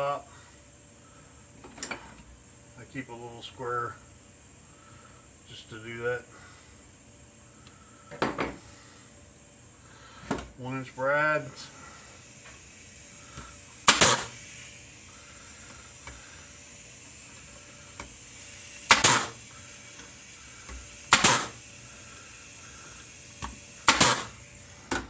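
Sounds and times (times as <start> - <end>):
nailer firing into wood: 13.8 - 14.4, 18.9 - 19.4, 21.1 - 21.6, 23.4 - 25.0.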